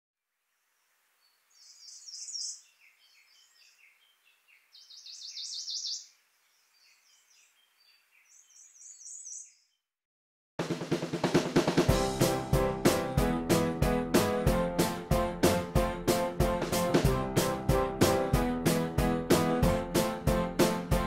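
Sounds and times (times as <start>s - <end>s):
faint steady hiss: 0.3s - 2.7s
drum music: 10.6s - 21.0s.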